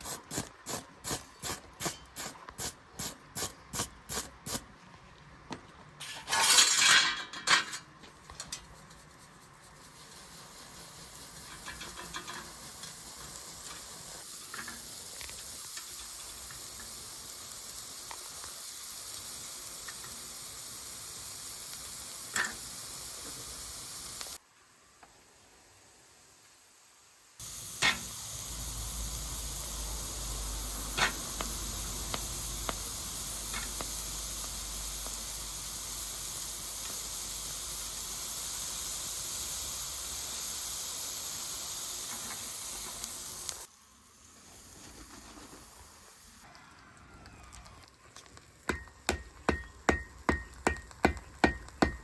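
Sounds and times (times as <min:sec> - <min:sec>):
gas flame hissing: 0:00.0 - 0:04.7, 0:09.7 - 0:24.4, 0:25.4 - 0:46.5, 0:48.3 - 0:52.0.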